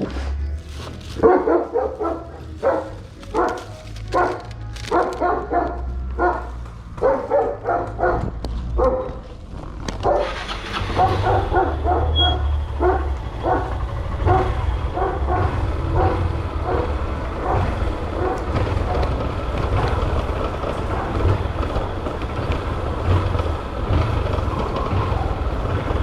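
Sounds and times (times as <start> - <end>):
dog barking: 1.1 - 9.4, 10.0 - 21.7.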